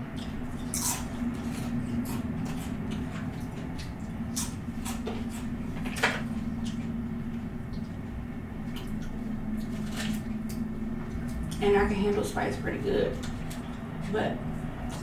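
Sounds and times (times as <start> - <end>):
steady low hum: 0.0 - 15.0
person chewing noodles: 0.1 - 7.0.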